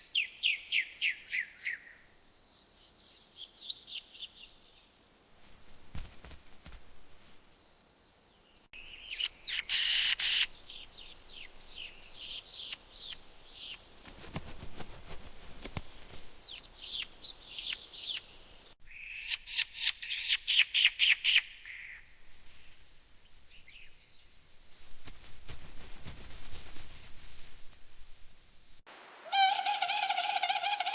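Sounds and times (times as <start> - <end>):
birds chirping and trilling: 7.6 - 14.0, 15.6 - 22.0.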